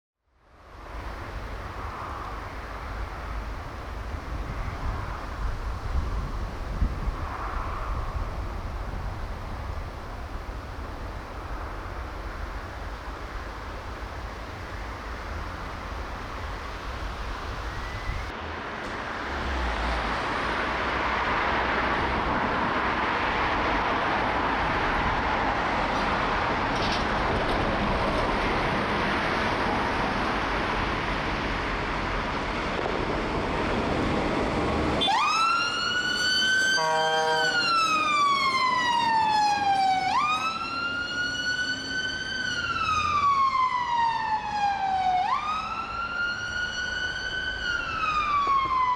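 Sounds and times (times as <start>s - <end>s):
heavy vehicle road noise: 0.4s - 48.9s
fire engine wail siren: 34.9s - 48.9s
stuttering horn blast: 36.3s - 38.2s.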